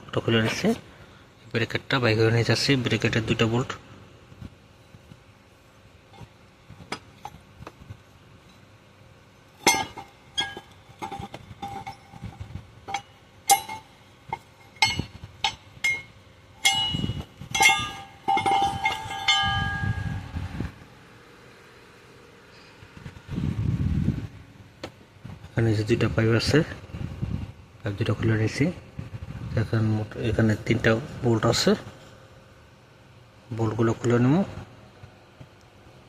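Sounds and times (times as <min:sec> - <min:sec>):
metal tools clinking against metal: 0:09.6 - 0:20.2.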